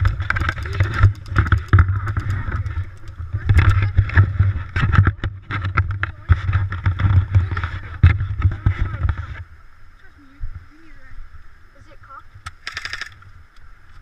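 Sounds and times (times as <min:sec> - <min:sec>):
sharp clicks and knocks: 0:00.0 - 0:09.3, 0:12.4 - 0:13.3
wind rumble on microphone: 0:00.0 - 0:12.5.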